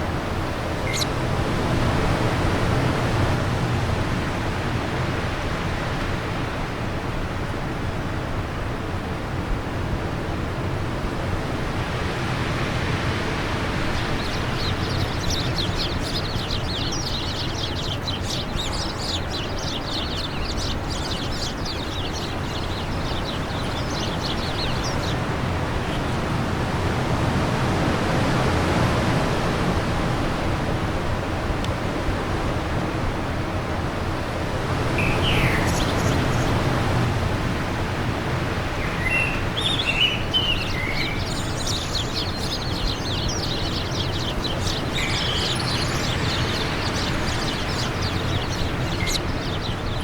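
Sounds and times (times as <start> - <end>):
small bird singing: 0.0 - 1.2, 13.2 - 26.4, 34.9 - 37.1, 38.4 - 50.0
wind blowing: 0.0 - 4.6, 11.1 - 50.0.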